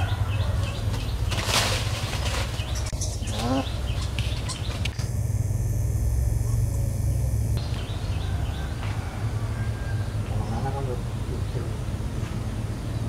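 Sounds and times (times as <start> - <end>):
small birds chirping: 0.0 - 9.0
steady low rumble: 0.0 - 13.0.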